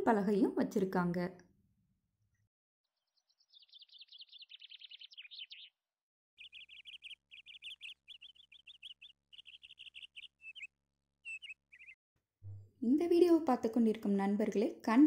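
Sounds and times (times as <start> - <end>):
bird chirping in fast runs: 3.0 - 5.8, 6.4 - 12.6.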